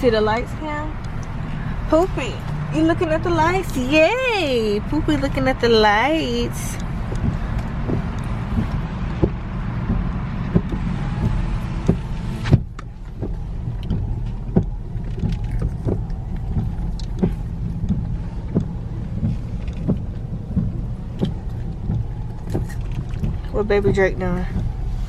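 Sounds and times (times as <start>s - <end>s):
car rumbling from inside cabin: 0.0s - 25.0s
light taps: 6.8s - 23.4s
rain hissing outside: 16.0s - 23.6s.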